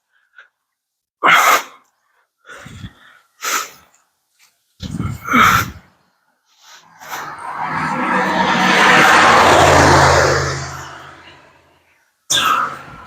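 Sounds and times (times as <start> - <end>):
person sneezing: 1.2 - 1.8
sharp breath bursts: 2.5 - 3.9.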